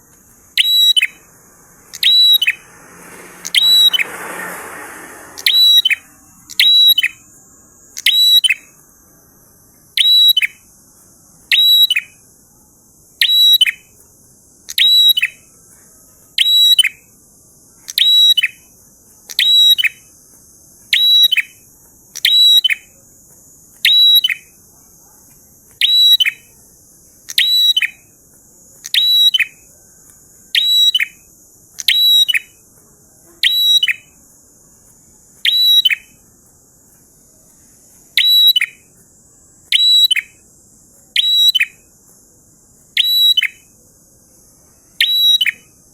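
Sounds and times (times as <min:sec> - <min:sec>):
faint high hiss: 0:00.0 - 0:14.8.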